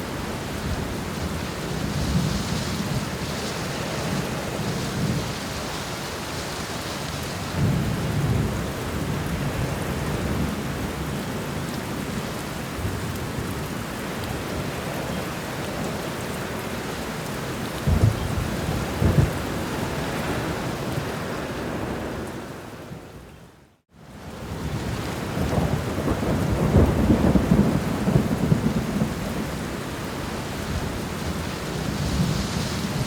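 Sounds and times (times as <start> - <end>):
heavy rain: 0.0 - 33.0
low thunder rumbling: 17.8 - 23.0, 24.6 - 33.0.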